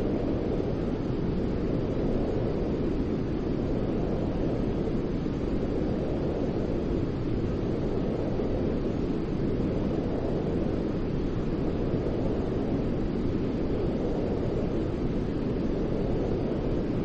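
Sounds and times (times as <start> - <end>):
deep white noise hiss: 0.0 - 17.0.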